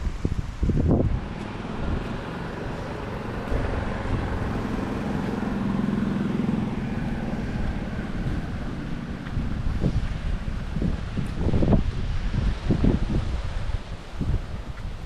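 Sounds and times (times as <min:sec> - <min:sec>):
wind buffeting microphone: 0:00.0 - 0:15.0
vehicle driving by: 0:00.6 - 0:12.6.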